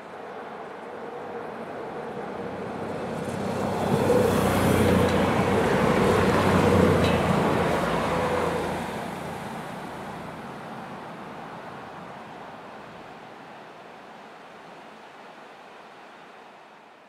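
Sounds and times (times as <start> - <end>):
diesel train passing: 0.2 - 12.2.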